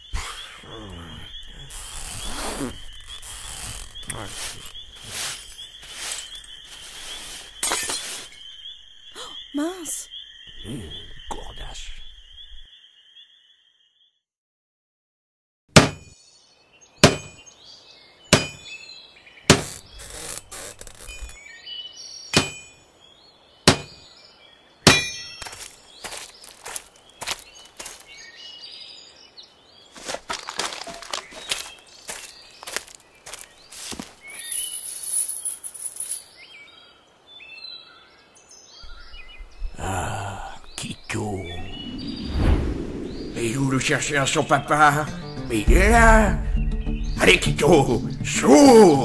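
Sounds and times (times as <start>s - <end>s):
birds chirping: 0.0s - 14.1s, 15.8s - 49.0s
woodland ambience: 0.0s - 14.2s, 15.7s - 49.0s
axe chopping into a log: 15.7s - 16.1s, 17.0s - 17.4s, 18.3s - 18.7s, 19.5s - 19.7s, 22.4s - 22.7s, 23.7s - 24.0s, 24.9s - 25.6s
short bird chirps: 38.8s - 43.8s
rushing sound with low rumble: 41.6s - 44.1s.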